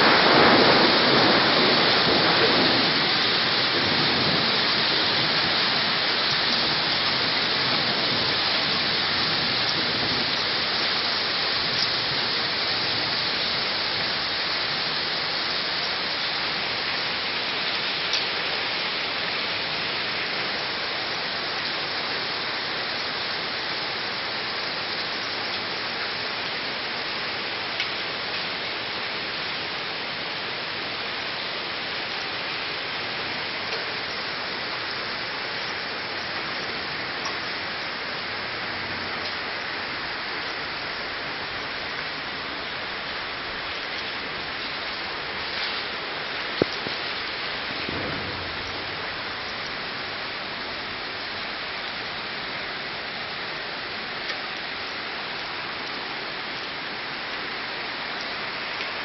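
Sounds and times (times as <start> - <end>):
thunder rumble: 0.0 - 14.0, 46.4 - 51.0
heavy rain hissing: 0.0 - 59.0.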